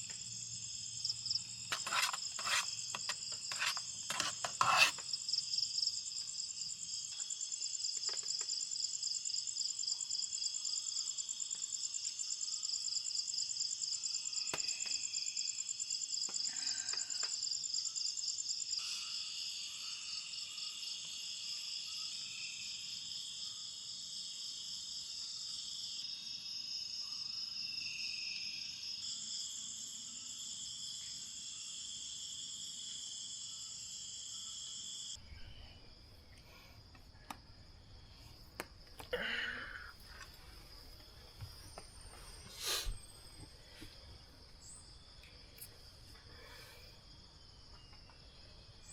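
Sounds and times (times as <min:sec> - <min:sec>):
insects shrilling: 0:01.7 - 0:05.1.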